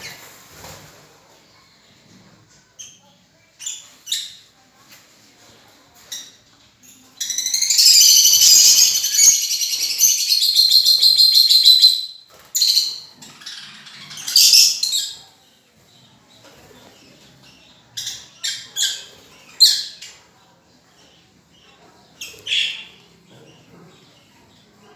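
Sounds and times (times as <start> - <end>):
lovebirds chirping: 6.0 - 24.9
sharp bird calls: 7.2 - 15.2, 22.2 - 23.2.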